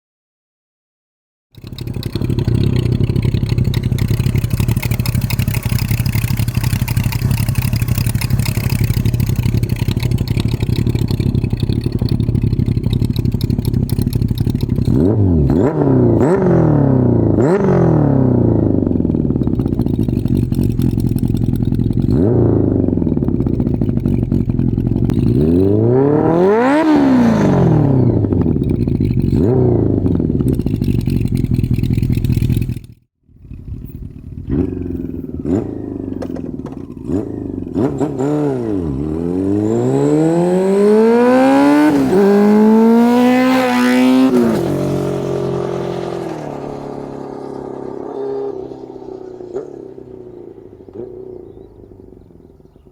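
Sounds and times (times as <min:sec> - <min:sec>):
motorcycle engine revving: 0:01.5 - 0:52.9
gear shifts: 0:01.6 - 0:16.5.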